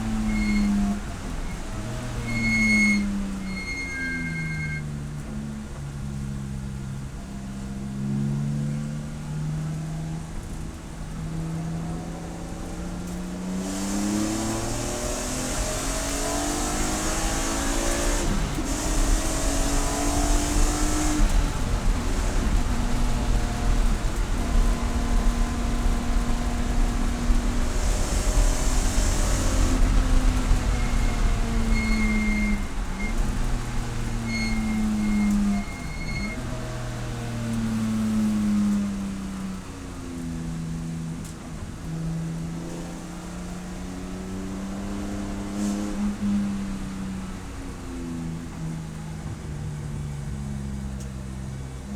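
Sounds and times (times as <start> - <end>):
thin high squeal: 0.0 - 5.0, 27.9 - 36.6
race car engine revving: 12.1 - 47.0.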